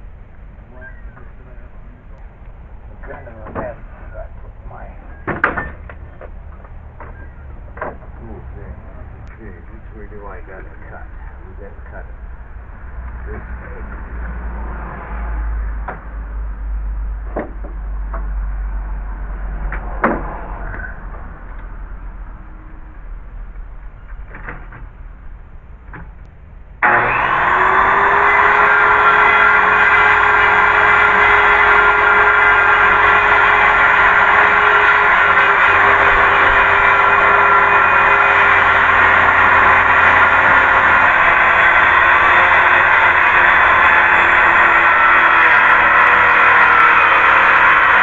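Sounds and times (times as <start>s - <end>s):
steady low hum: 0.0s - 27.2s
wood and tools knocking: 5.2s - 8.2s, 17.3s - 18.4s
power saw running: 26.8s - 48.0s.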